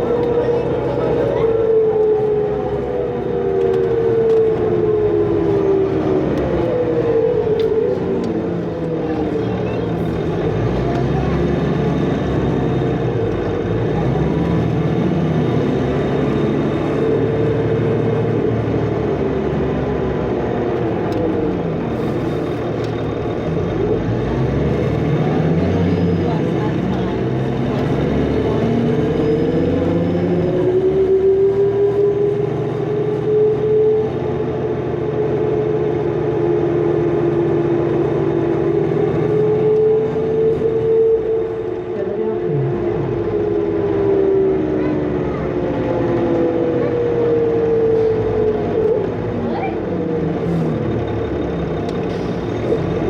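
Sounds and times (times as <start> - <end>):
bus diesel engine running: 0.0 - 53.0.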